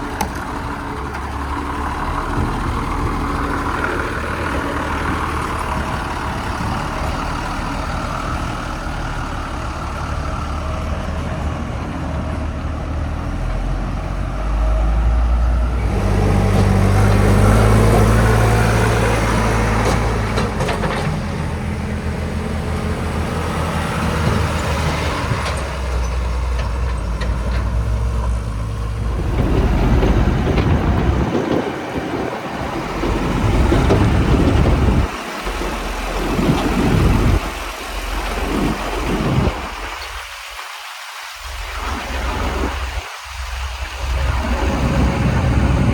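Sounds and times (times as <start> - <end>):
diesel engine revving: 0.0 - 40.3, 41.4 - 45.9.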